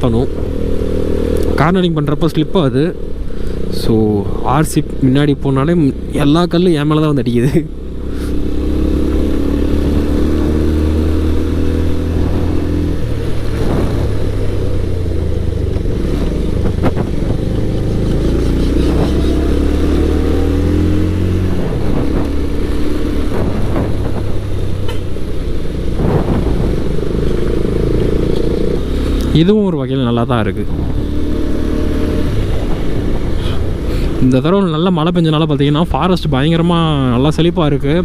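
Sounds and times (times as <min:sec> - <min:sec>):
motorcycle engine running: 0:00.0 - 0:35.0
sharp knocks: 0:23.1 - 0:25.2.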